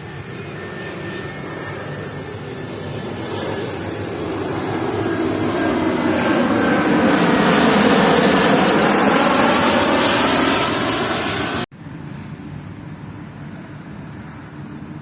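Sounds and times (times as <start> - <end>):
engine whine shifting in pitch: 0.0 - 11.7
airliner flying overhead: 0.0 - 15.0.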